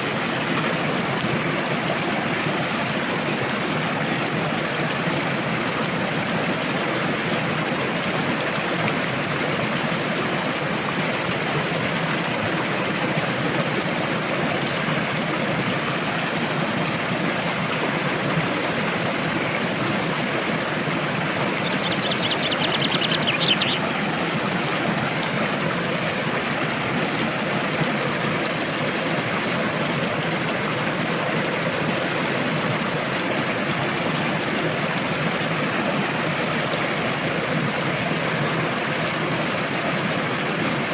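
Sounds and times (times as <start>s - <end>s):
rushing river water: 0.0s - 40.9s
bird trill: 21.6s - 23.8s.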